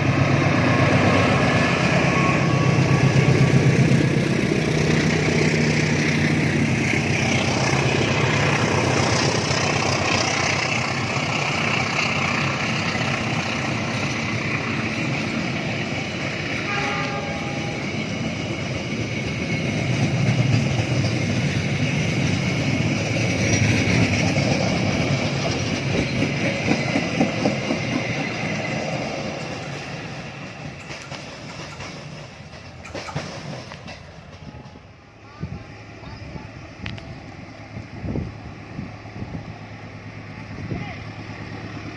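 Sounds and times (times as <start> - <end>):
train wheels rumbling on rails: 0.0 - 41.9
clattering over rail joints: 23.4 - 34.8.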